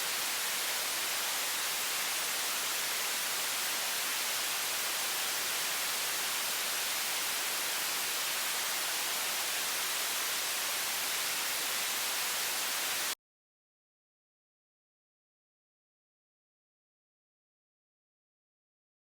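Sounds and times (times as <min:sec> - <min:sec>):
faucet water stream hissing: 0:00.0 - 0:13.2.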